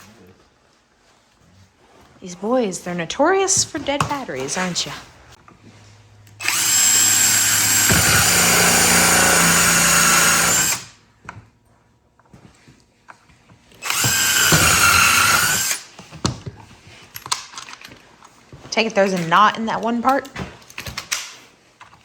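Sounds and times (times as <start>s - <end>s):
cordless drill driving screws: 6.4s - 11.0s, 13.7s - 15.9s.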